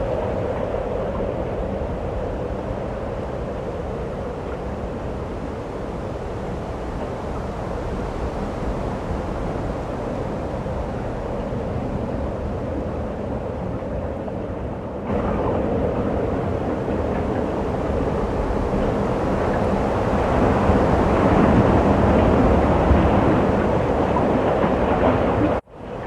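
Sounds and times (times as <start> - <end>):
snowstorm wind rushing: 0.0 - 26.0.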